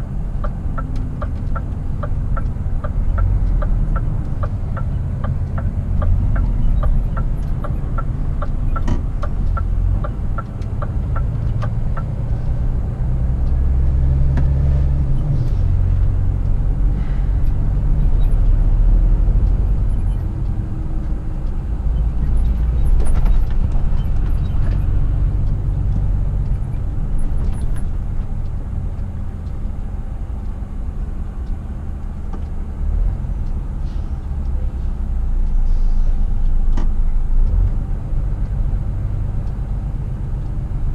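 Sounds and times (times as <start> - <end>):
truck diesel engine rumble: 0.0 - 40.9
regular ticking: 0.1 - 15.2.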